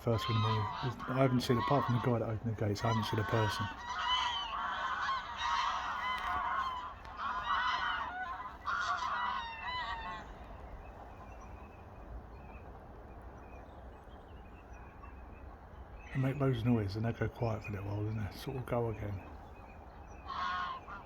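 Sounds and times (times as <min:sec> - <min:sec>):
geese honking: 0:00.0 - 0:11.7, 0:16.1 - 0:21.0.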